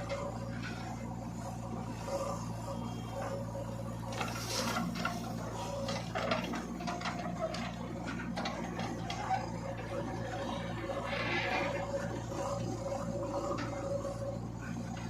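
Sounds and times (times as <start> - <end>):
diesel engine running: 0.0 - 15.0
bucket clanking and scraping soil: 4.1 - 9.8.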